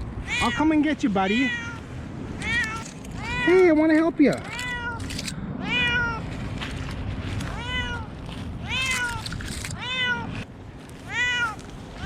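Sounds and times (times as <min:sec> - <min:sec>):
cat meowing loudly: 0:00.2 - 0:03.7, 0:04.4 - 0:06.3, 0:07.5 - 0:10.4, 0:11.0 - 0:12.0
rustling: 0:06.2 - 0:12.0.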